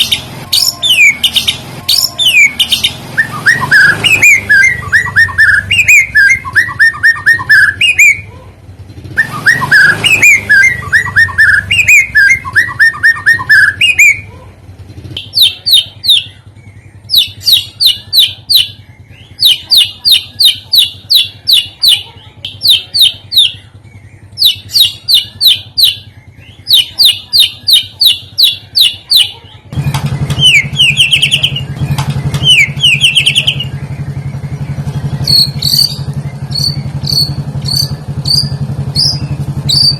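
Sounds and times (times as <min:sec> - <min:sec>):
fast chirping trills: 0:00.0 - 0:08.3, 0:09.2 - 0:14.3, 0:15.1 - 0:39.9
steady low hum: 0:17.7 - 0:39.9.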